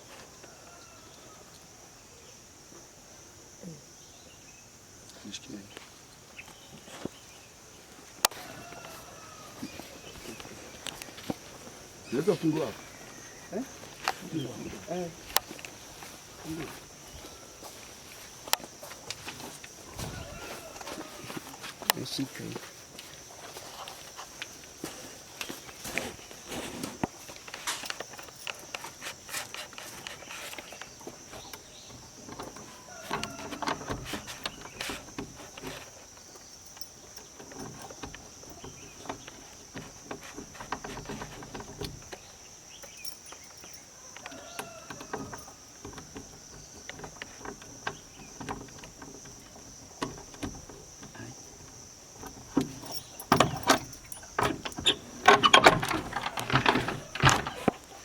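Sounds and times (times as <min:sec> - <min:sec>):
objects being handled and opened: 0:13.7 - 0:58.0.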